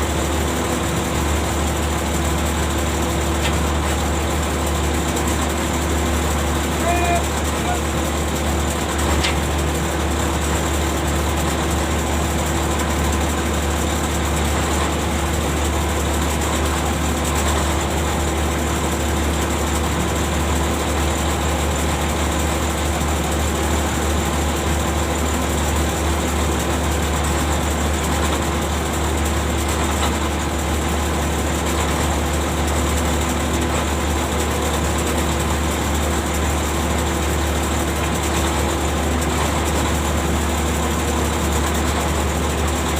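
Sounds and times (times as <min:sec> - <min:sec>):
ship engine drone: 0:00.0 - 0:11.2.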